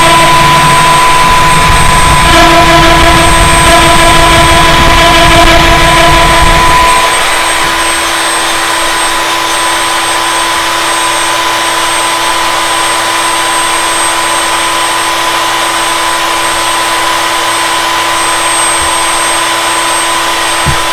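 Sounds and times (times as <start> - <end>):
heavy low rumble: 0.0 - 7.8
wood router high whine: 0.0 - 20.9.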